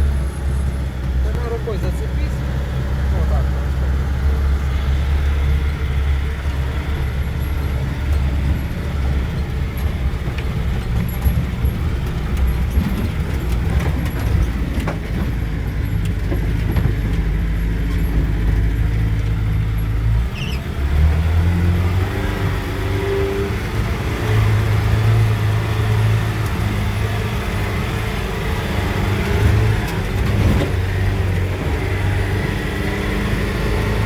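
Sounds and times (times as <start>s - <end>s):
vehicle engine droning: 0.0s - 34.0s
knocks and rattles: 5.3s - 20.5s.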